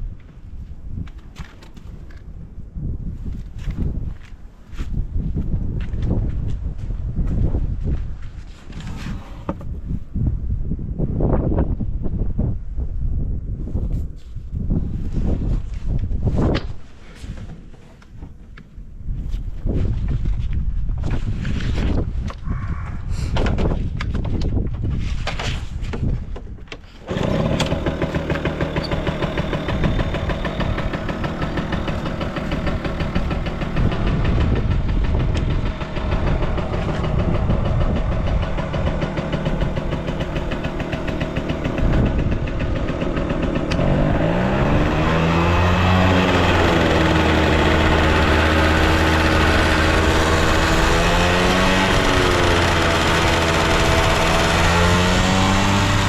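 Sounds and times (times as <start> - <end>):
scooter engine idling and revving: 27.0 - 56.0.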